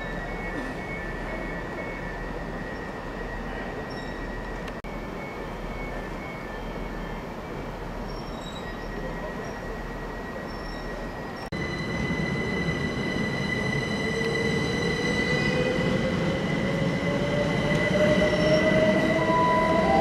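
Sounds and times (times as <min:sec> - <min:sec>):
train rumble: 0:00.0 - 0:20.0
train wheel squeal: 0:00.0 - 0:20.0.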